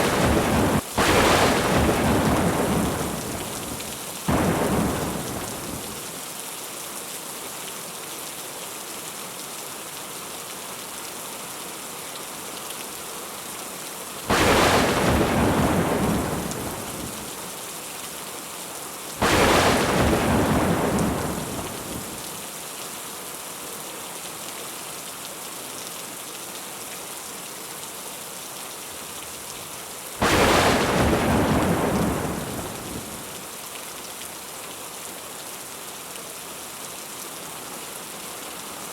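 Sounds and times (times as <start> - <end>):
thunder cracks rumbling: 0.0 - 6.1, 14.3 - 17.4, 19.2 - 22.3, 30.2 - 33.4
steady rain: 0.0 - 38.9.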